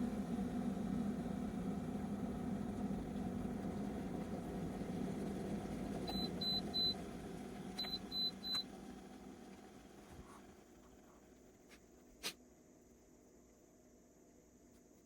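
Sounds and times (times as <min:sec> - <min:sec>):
kettle heating water: 0:00.0 - 0:11.3.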